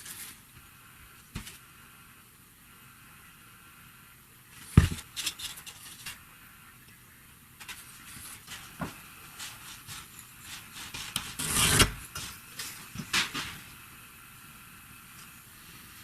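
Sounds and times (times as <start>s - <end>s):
rubbing and scraping handling noises: 0.0s - 1.7s, 4.5s - 6.3s, 7.6s - 13.8s
loud rasping scrape: 9.4s - 12.3s.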